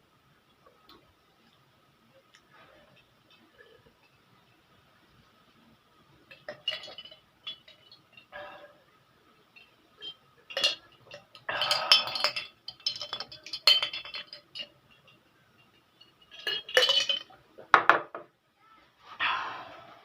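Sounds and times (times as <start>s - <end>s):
cutlery clinking on plates: 9.6s - 15.2s.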